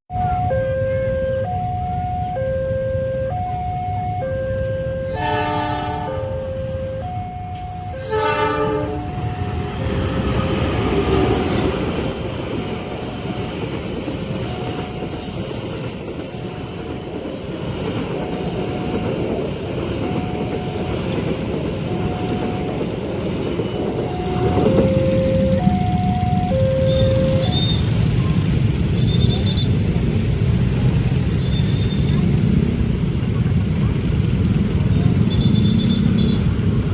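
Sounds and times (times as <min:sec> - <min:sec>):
two-tone crossing warning bell: 0:00.1 - 0:32.6
train wheels rumbling on rails: 0:03.2 - 0:36.9
train horn blast: 0:04.6 - 0:06.8, 0:07.9 - 0:10.6, 0:35.3 - 0:36.6.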